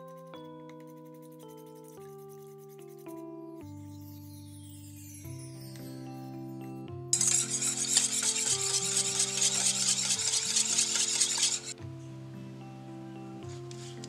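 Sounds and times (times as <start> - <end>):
soft background music: 0.0 - 14.0
pancake batter hissing: 7.2 - 11.7.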